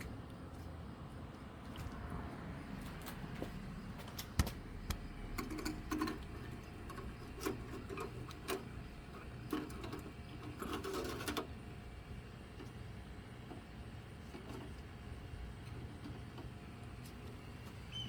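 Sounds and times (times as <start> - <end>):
low steady hum: 0.0 - 18.0
rubbing and rattling: 5.4 - 11.5.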